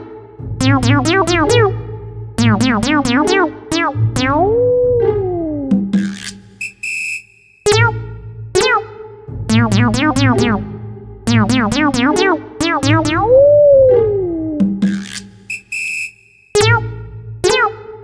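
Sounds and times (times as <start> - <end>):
synthesizer swoop: 2.4 - 5.9, 9.5 - 14.8
steady low bass note: 4.0 - 5.8, 9.4 - 12.2, 12.8 - 14.8.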